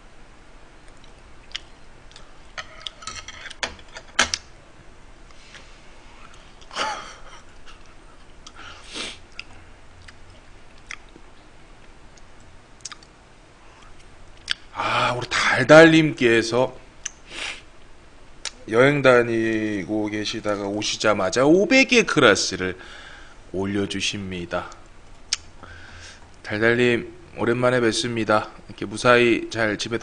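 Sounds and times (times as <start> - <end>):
wet chewing mouth smacks: 12.2 - 13.1.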